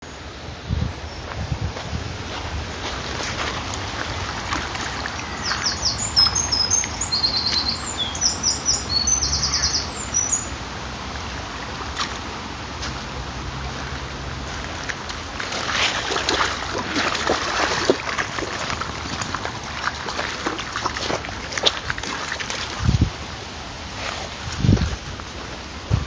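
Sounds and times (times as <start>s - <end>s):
steady outdoor rushing noise: 0.0s - 26.0s
small birds chirping: 5.2s - 10.6s.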